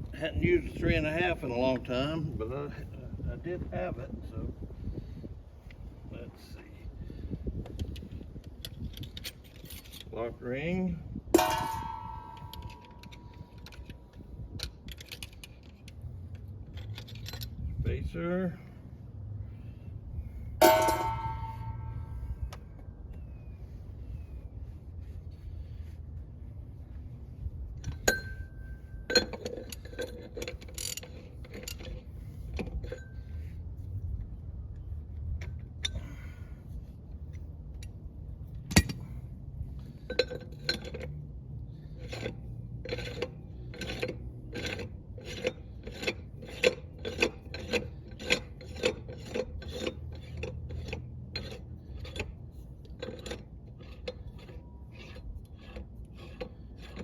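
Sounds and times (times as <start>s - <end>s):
sharp metal clank: 11.4s - 13.6s, 20.6s - 22.3s
metal clinking and tapping: 11.4s - 14.0s, 20.6s - 22.1s.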